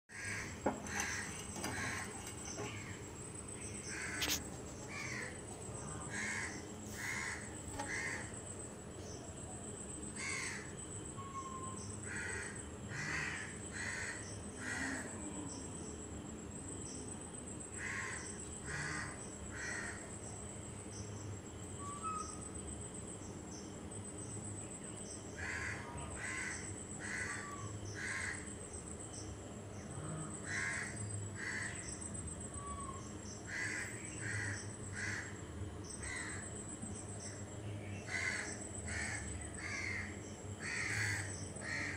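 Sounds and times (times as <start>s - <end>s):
birds calling: 0.1s - 9.3s.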